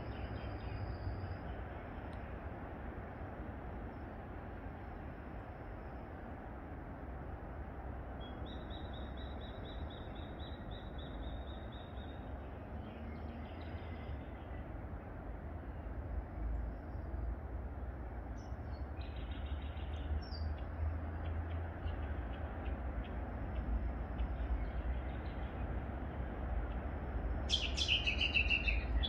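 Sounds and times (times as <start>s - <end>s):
small bird chirping: 27.5s - 29.0s.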